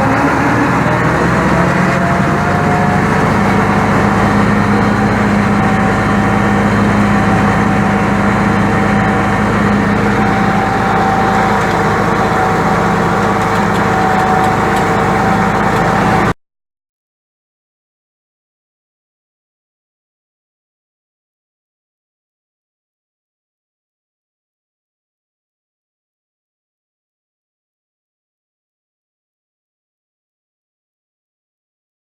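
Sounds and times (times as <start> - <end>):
thin steady whine: 0.0 - 16.4
tractor diesel engine running: 0.0 - 16.4.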